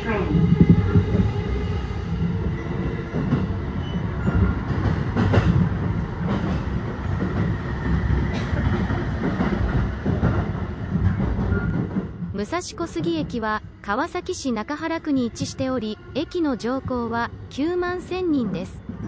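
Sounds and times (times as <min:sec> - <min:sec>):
train wheels rumbling on rail: 0:00.0 - 0:19.0
sharp clacks of wheels: 0:04.2 - 0:12.3.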